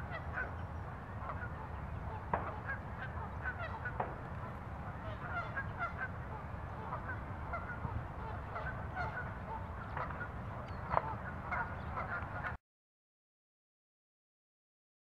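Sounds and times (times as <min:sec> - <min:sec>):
birds honking calls: 0:00.0 - 0:12.6.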